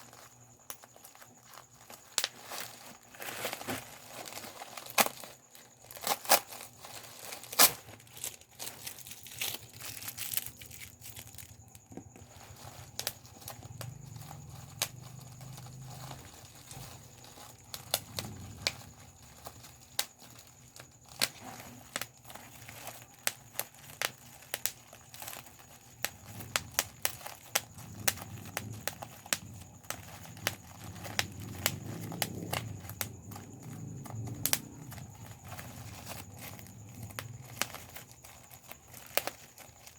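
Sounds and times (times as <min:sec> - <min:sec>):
bubble wrap popping: 0:00.0 - 0:39.9
plastic sheet crinkling: 0:00.0 - 0:39.9.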